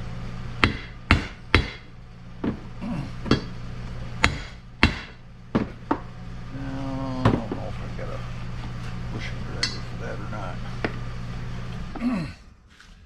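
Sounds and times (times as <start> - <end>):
steady low hum: 0.0 - 13.0
hammer striking steel: 4.2 - 5.2.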